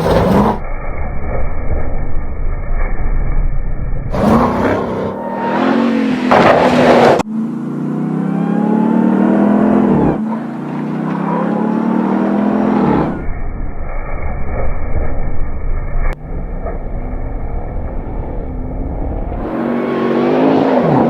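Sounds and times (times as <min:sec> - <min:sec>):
pickup truck engine accelerating: 0:04.1 - 0:13.4, 0:16.2 - 0:21.0
low dull engine rumble: 0:13.1 - 0:19.6.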